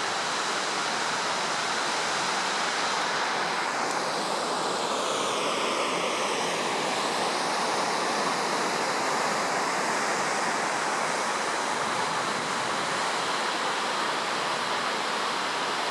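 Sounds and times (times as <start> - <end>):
flooded river rushing: 0.0 - 5.1.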